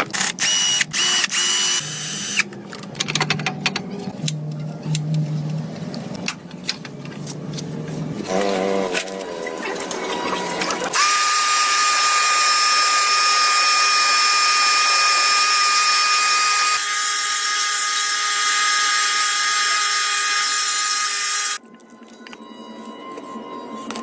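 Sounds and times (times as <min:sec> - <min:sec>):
power tool whining: 0:00.0 - 0:02.4, 0:10.9 - 0:21.6.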